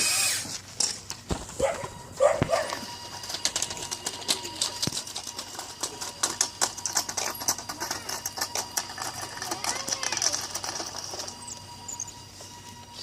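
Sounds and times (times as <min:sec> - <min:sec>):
faint steady whine: 0:00.0 - 0:13.0
model bulldozer clicking and rattling: 0:02.5 - 0:12.8.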